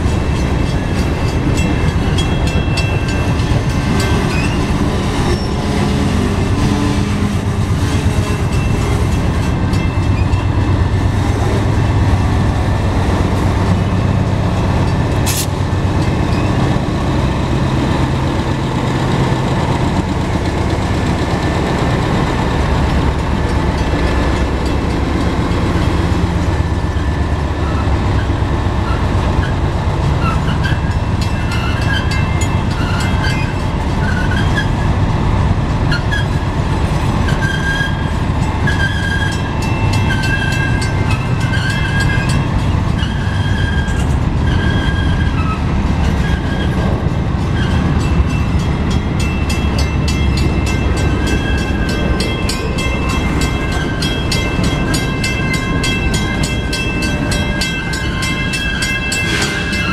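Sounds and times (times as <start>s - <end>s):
diesel locomotive engine: 0.0s - 59.9s
freight train low rumble: 0.0s - 59.9s
wheels squealing: 37.2s - 59.9s.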